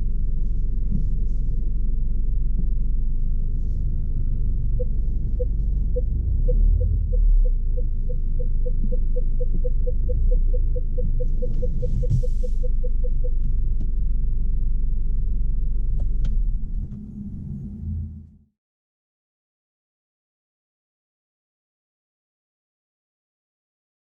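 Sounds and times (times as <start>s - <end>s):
car engine rumble from cabin: 0.0s - 18.4s
parking sensor beeping: 4.7s - 13.4s.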